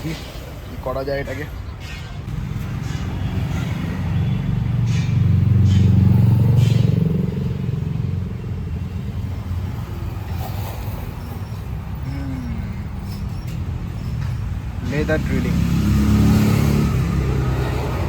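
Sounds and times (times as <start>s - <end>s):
vehicle engine driving past: 2.3s - 8.8s, 14.9s - 18.0s.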